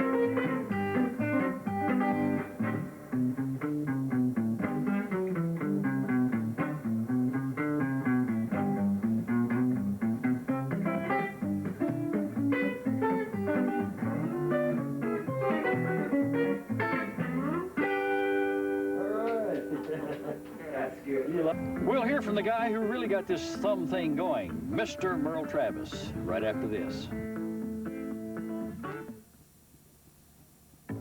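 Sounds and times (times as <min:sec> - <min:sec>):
fingerpicked solo guitar: 0:00.0 - 0:29.4.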